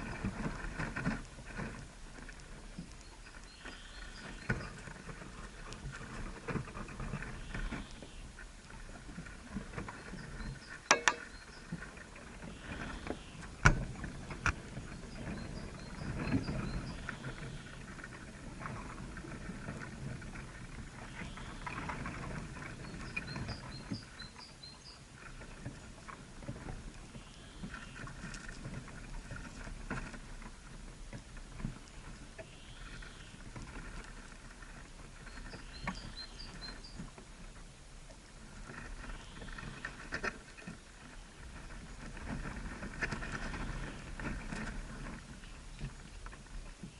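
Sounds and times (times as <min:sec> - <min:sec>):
small birds chirping: 0:02.8 - 0:04.9, 0:14.1 - 0:17.8, 0:22.6 - 0:25.0, 0:35.2 - 0:37.1
sharp knocks: 0:10.9 - 0:11.3.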